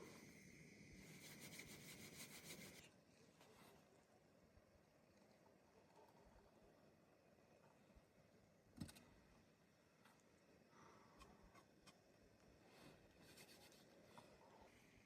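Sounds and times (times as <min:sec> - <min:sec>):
faint scratching and clicking rustles: 0:11.1 - 0:14.8.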